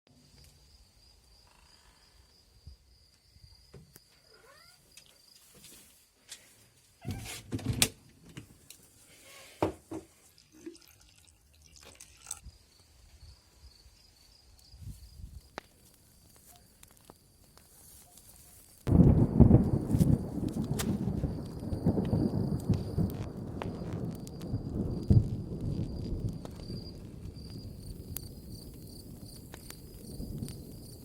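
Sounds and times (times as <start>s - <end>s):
crickets trilling: 0.3s - 5.5s, 12.4s - 31.0s.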